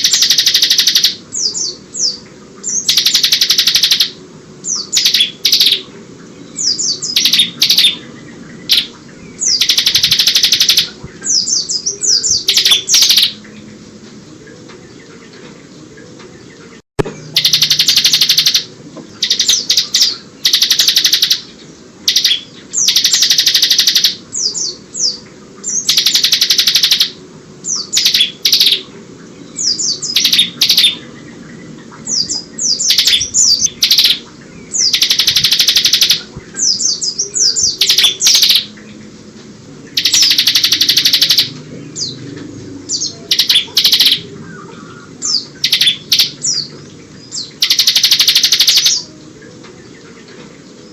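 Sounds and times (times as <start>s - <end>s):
bird rattling trills: 0.0s - 1.2s, 2.8s - 4.2s, 4.8s - 5.8s, 7.1s - 8.0s, 8.7s - 11.0s, 17.3s - 21.5s, 22.1s - 24.2s, 25.8s - 27.2s, 28.0s - 28.8s, 30.1s - 31.0s, 32.8s - 36.3s, 37.6s - 38.7s, 39.9s - 41.5s, 43.3s - 44.2s, 45.6s - 46.6s, 47.6s - 49.1s
bird sharp chirps: 2.0s - 4.2s, 6.7s - 8.0s, 17.0s - 21.5s, 22.1s - 24.2s, 25.8s - 27.2s, 27.8s - 28.9s, 29.6s - 31.1s, 32.2s - 38.7s, 39.9s - 42.2s, 43.0s - 46.7s, 47.4s - 49.1s.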